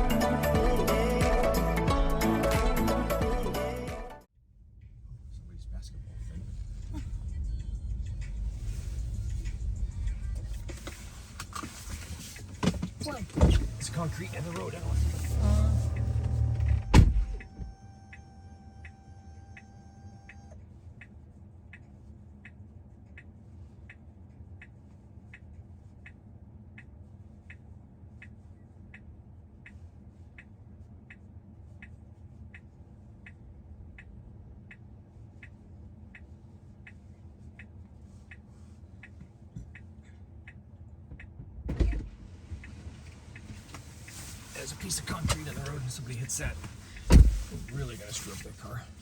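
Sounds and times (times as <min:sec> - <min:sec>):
low cabin hum: 0:00.0 - 0:49.0
car indicator ticking: 0:11.6 - 0:27.6, 0:28.2 - 0:42.8, 0:43.4 - 0:48.8
loud thump: 0:47.1 - 0:47.5.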